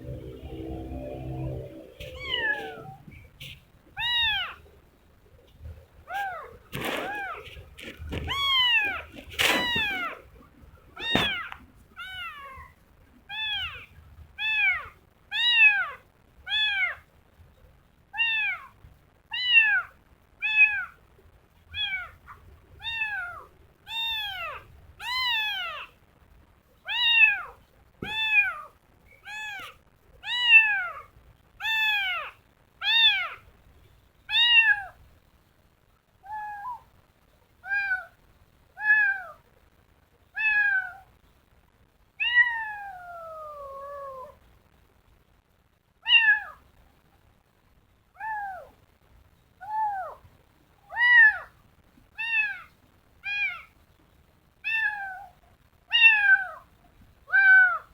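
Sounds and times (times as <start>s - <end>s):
kitten meowing: 1.3s - 3.1s, 4.0s - 4.6s, 6.1s - 10.2s, 11.0s - 12.7s, 13.3s - 17.0s, 18.2s - 18.7s, 21.7s - 22.2s, 22.8s - 25.9s, 26.9s - 28.7s, 29.3s - 33.4s, 34.3s - 35.0s, 38.8s - 39.4s, 40.4s - 41.1s, 42.2s - 44.4s, 46.0s - 46.6s, 48.2s - 48.7s, 50.9s - 51.5s, 52.2s - 53.7s, 54.6s - 56.6s, 57.3s - 57.9s.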